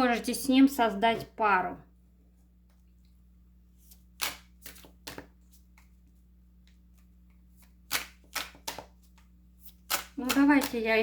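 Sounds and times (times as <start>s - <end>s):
cards shuffling: 3.8s - 6.0s, 6.6s - 11.0s.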